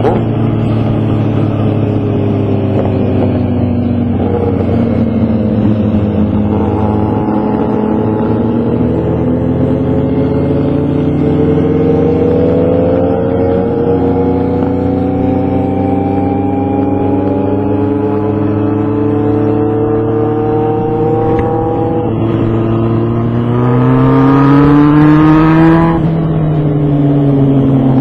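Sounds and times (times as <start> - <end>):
motorcycle engine droning: 0.0 - 28.0.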